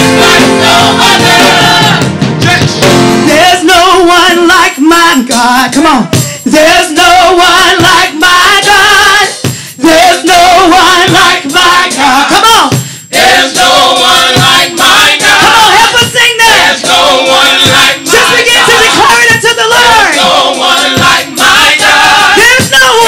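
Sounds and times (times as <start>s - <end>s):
band playing: 0.0s - 4.3s, 9.9s - 23.0s
group singing gospel: 0.0s - 5.5s, 6.4s - 23.0s.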